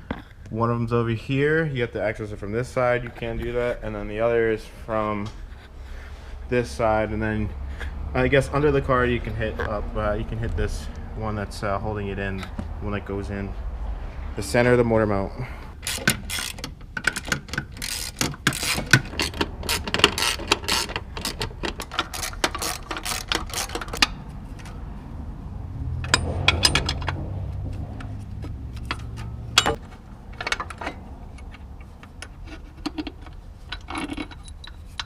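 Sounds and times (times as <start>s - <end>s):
ratchet wrench clicking: 15.8s - 24.7s
low hum: 24.0s - 35.0s.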